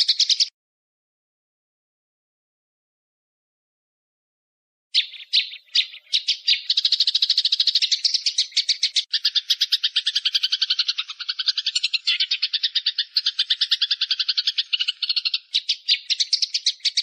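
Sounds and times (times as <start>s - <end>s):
bird call rattling: 0.0s - 0.5s, 5.0s - 17.0s.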